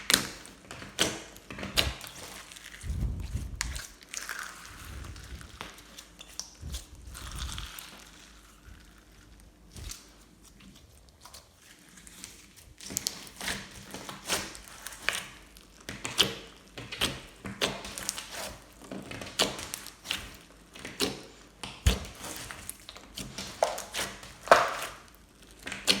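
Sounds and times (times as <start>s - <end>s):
slime squished by hand: 0.0s - 15.4s.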